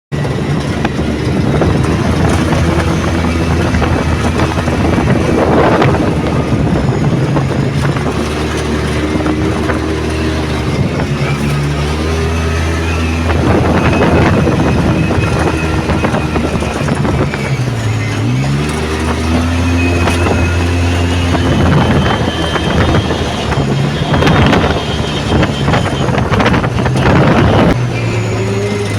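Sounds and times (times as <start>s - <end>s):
off-road vehicle engine running: 0.1s - 28.9s.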